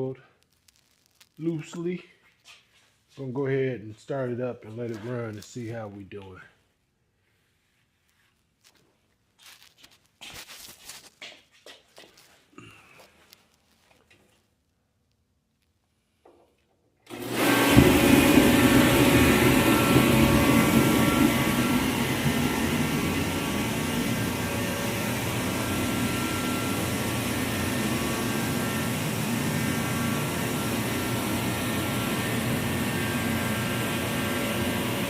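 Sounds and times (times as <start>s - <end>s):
forced-air heater running: 17.1s - 35.0s.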